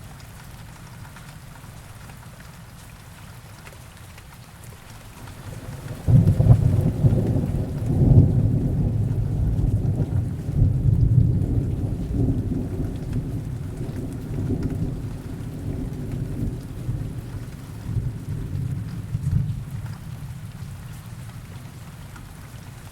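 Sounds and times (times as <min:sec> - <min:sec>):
heavy rain: 0:00.0 - 0:22.9
thunder rolling: 0:05.3 - 0:20.8.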